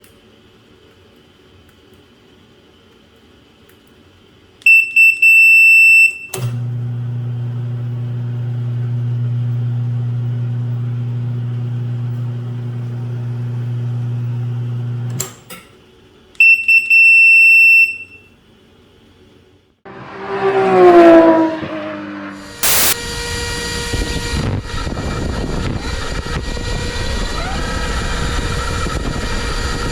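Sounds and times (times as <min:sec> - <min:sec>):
long high beep: 0:22.6 - 0:23.0
short high electronic beeps: 0:22.6 - 0:23.0.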